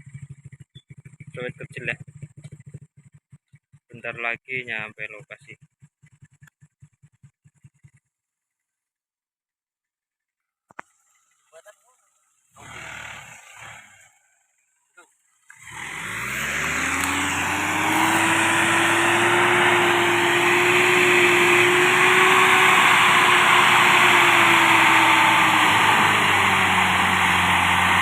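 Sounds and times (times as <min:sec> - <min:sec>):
pickup engine running hard: 0:15.5 - 0:28.0.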